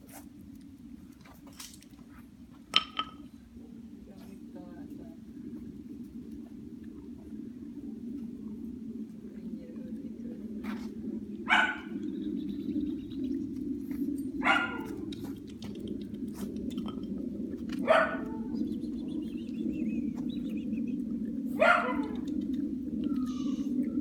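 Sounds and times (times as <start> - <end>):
puppy barking: 11.5 - 11.9, 14.4 - 15.0, 17.8 - 18.5, 21.6 - 22.2.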